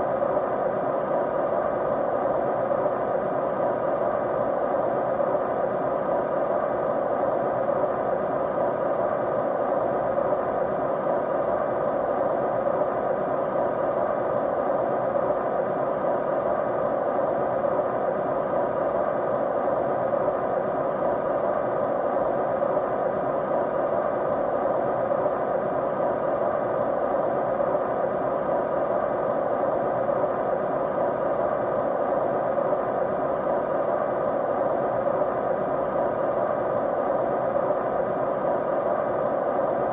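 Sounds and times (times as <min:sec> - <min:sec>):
faint steady tones: 0:00.0 - 0:39.9
white noise hiss: 0:00.0 - 0:39.9.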